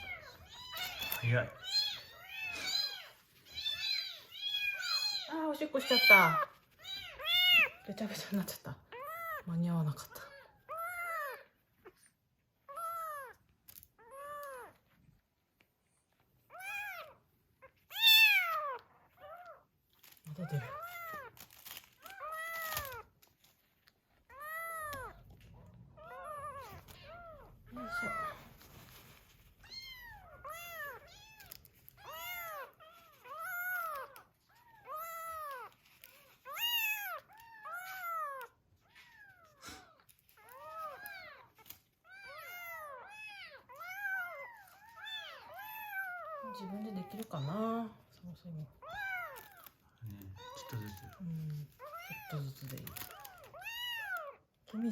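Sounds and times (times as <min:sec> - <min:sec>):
kitten mewing: 0:00.0 - 0:08.1, 0:24.3 - 0:28.6, 0:48.7 - 0:54.4
kittens mewing: 0:00.0 - 0:15.0, 0:16.5 - 0:23.2, 0:24.1 - 0:54.9.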